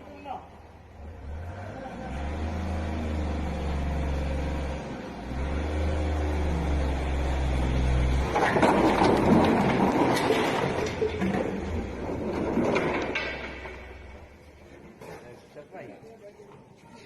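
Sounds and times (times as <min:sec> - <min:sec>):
truck engine revving: 0:00.9 - 0:12.5
loud rushing clatter: 0:08.3 - 0:14.0.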